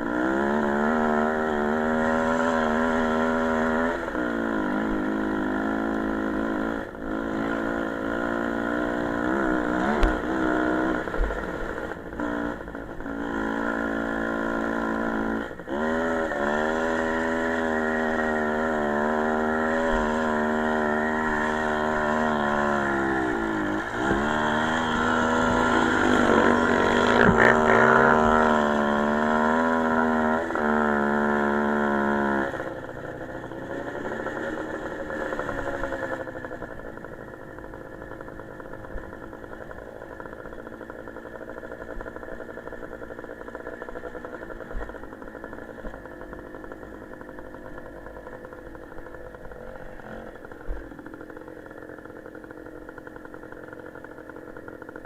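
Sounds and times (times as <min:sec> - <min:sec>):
small motorcycle engine running: 0:00.0 - 0:55.0.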